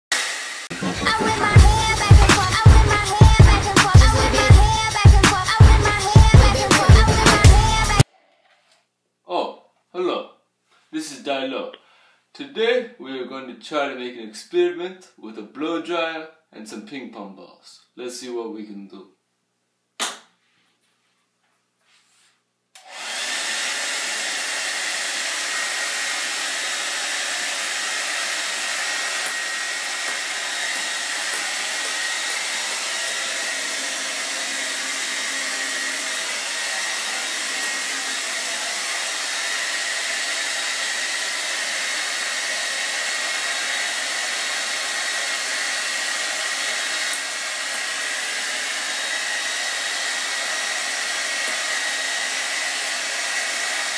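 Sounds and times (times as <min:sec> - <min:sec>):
hair dryer running: 0:00.1 - 0:08.1, 0:22.8 - 0:53.9.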